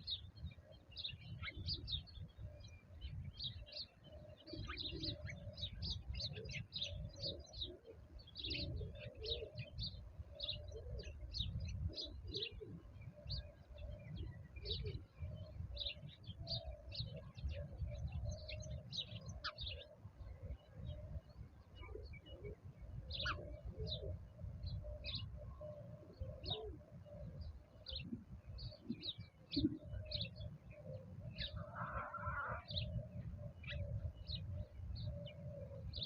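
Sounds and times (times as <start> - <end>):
small birds chirping: 0.0 - 36.0
cooing calls: 4.1 - 9.8, 21.8 - 24.3, 25.0 - 36.0.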